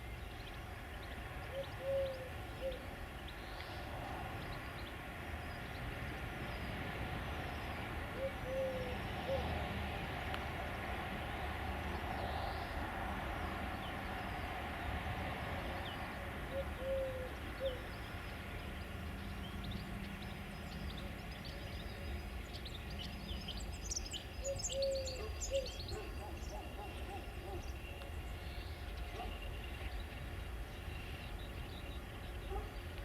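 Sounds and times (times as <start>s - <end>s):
freight train rumbling past: 0.0s - 33.0s
small birds chirping: 15.8s - 33.0s.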